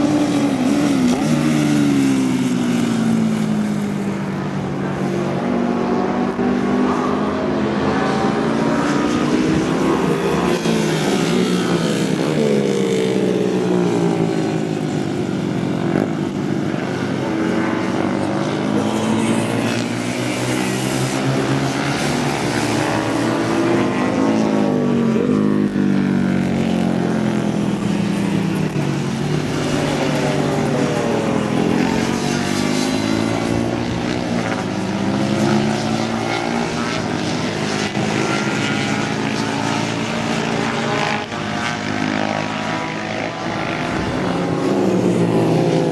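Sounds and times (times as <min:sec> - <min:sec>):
racing motorcycle engines: 0:00.0 - 0:45.9.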